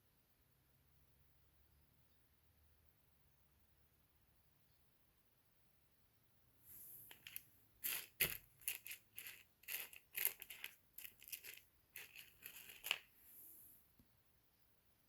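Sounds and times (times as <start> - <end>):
handling crinkles and clicks: 7.1 - 13.1.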